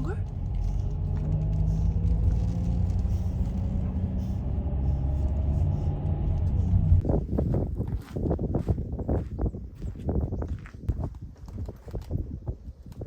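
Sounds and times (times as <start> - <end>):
car engine and road rumble: 0.0 - 7.1.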